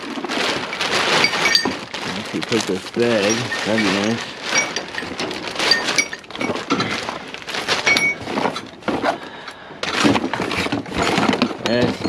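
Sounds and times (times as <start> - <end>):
rustling: 0.0 - 12.0
scrap metal clanking: 0.4 - 9.2.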